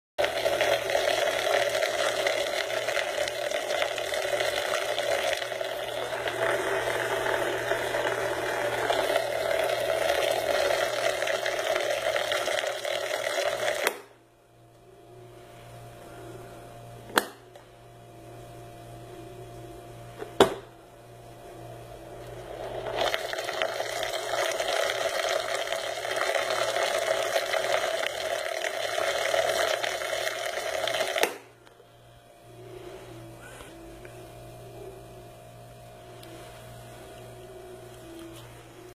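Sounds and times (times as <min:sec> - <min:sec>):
small blender motor running: 0:00.2 - 0:14.2, 0:21.5 - 0:35.0.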